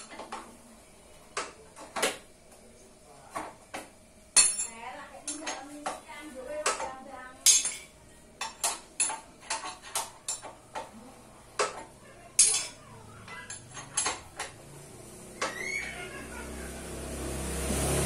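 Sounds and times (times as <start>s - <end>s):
metal tools clinking: 7.5s - 10.6s, 12.4s - 14.6s
short rising squeak: 15.3s - 16.2s.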